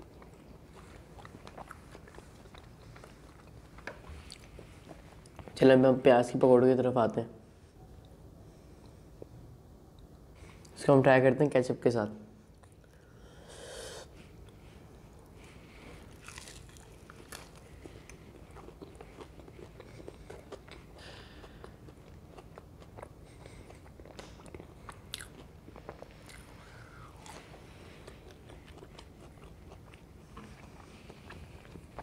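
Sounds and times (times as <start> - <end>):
crunching and chewing fried fritter: 0.0 - 5.5, 15.4 - 32.0.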